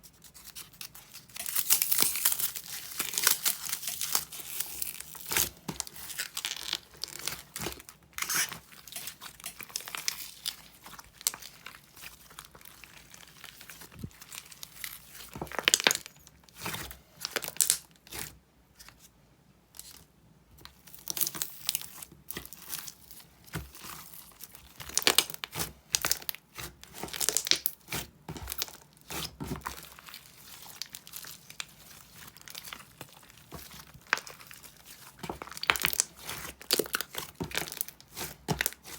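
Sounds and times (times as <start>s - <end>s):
crinkling and crackling with clicks: 0.0s - 19.1s, 19.8s - 38.9s.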